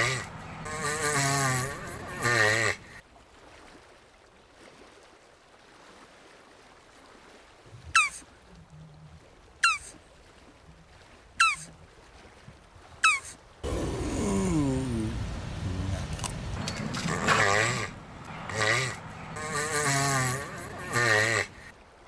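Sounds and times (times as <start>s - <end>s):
tortoise bleat-like call: 0.0s - 3.0s, 13.0s - 21.7s.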